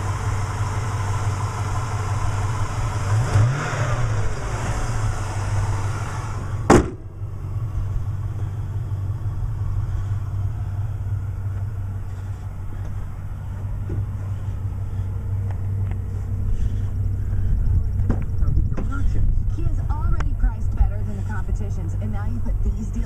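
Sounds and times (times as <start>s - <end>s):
car engine idling: 0.0s - 23.0s
car hood slamming shut: 6.6s - 7.1s.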